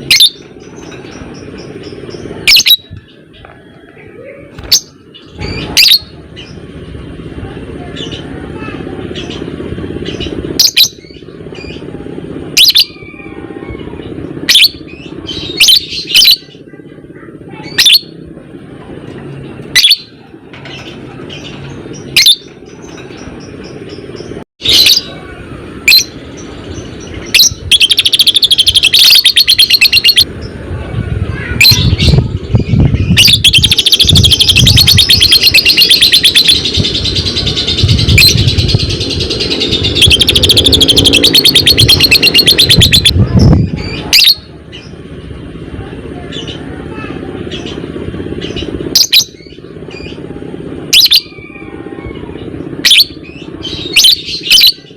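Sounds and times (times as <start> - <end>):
lovebird rattling chatter: 27.3 - 30.2, 32.7 - 43.3.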